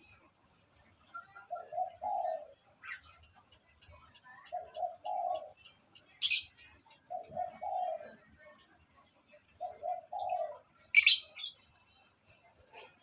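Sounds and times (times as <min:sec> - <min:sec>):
dove cooing: 0:01.1 - 0:03.2, 0:04.4 - 0:08.4, 0:09.5 - 0:11.6
high bird chirp: 0:09.6 - 0:11.6.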